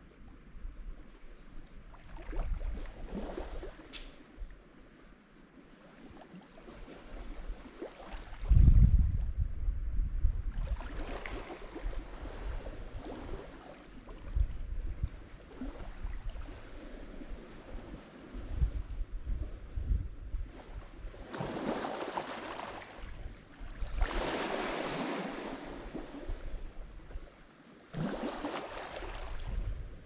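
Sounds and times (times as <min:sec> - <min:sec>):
waves breaking on shore: 0:01.9 - 0:04.5, 0:05.6 - 0:08.6, 0:10.5 - 0:14.5, 0:15.2 - 0:18.9, 0:20.4 - 0:30.0.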